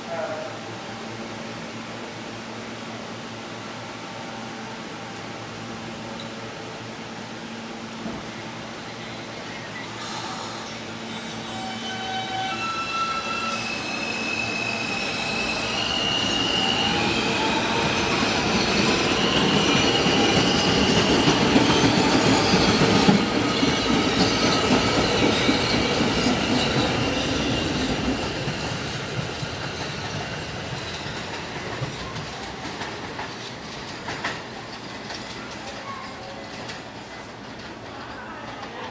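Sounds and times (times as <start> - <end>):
wheel rumble and clatter on rails: 18.4 - 38.9.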